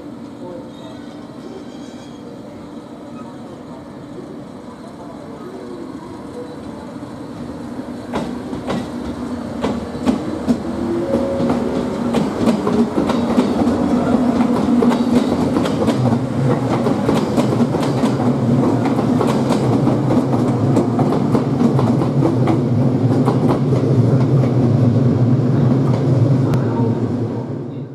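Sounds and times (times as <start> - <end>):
train motors humming: 0.0 - 27.9.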